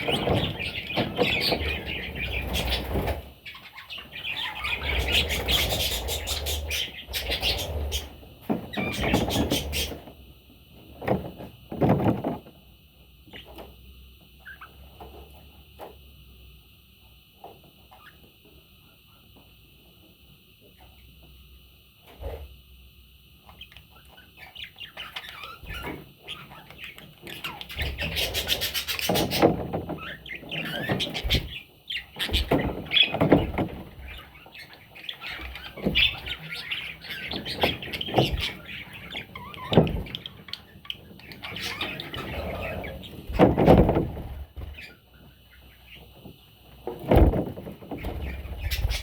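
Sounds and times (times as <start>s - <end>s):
bird chicks chirping and squawking: 0.0s - 10.1s, 23.4s - 49.0s.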